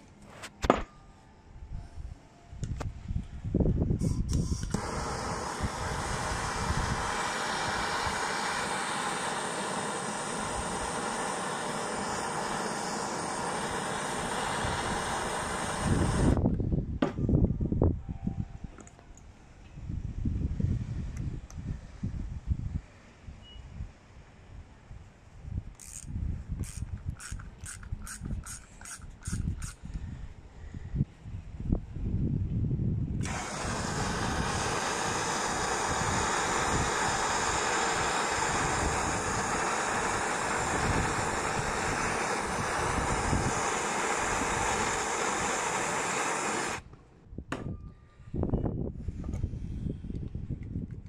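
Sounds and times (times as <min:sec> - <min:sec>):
gas jet hissing: 0:04.0 - 0:16.4, 0:25.8 - 0:29.8, 0:33.2 - 0:46.9
ratchet wrench clicking: 0:25.8 - 0:29.9.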